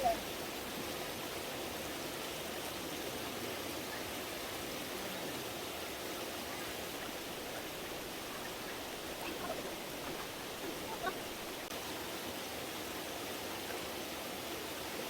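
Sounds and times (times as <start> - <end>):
stream flowing over rocks: 0.0 - 15.0.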